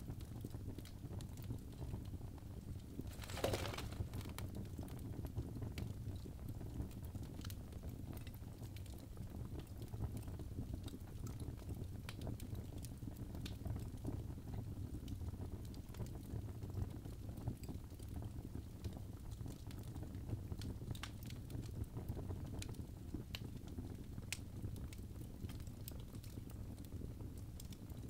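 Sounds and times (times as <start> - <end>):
logs crackling in fireplace: 0.0 - 28.0
low rumble of flame: 0.0 - 28.0
hissing crackle: 3.0 - 4.6.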